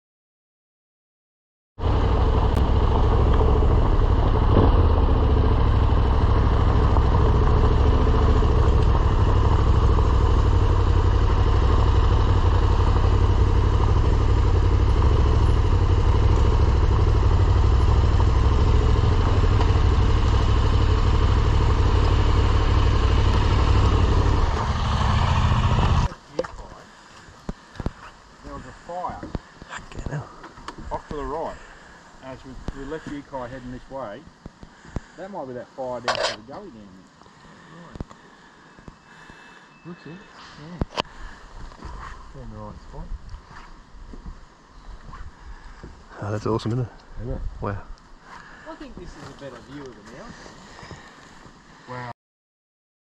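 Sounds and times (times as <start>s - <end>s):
motorcycle engine idling: 1.8s - 26.1s.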